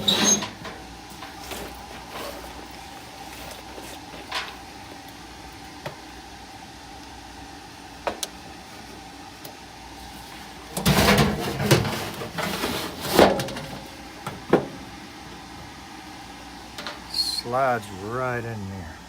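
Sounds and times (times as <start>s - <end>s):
metal scraping and rattling: 0.0s - 4.6s, 10.8s - 13.8s.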